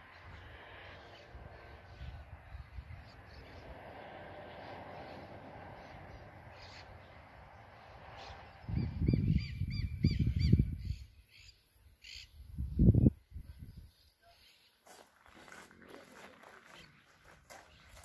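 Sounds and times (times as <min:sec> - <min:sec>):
wind rumbling on microphone: 0:00.0 - 0:11.1, 0:12.4 - 0:14.0
bird calling: 0:05.8 - 0:07.2.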